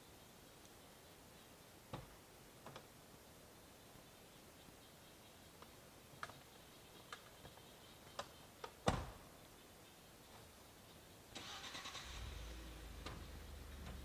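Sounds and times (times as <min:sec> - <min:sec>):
truck engine idling: 0:11.4 - 0:14.0
truck engine starter cranking: 0:11.4 - 0:14.0.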